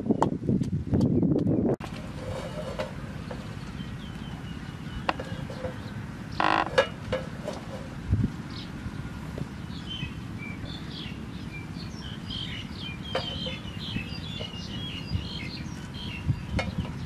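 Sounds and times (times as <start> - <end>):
small birds chirping: 0.0 - 6.9, 7.7 - 17.0.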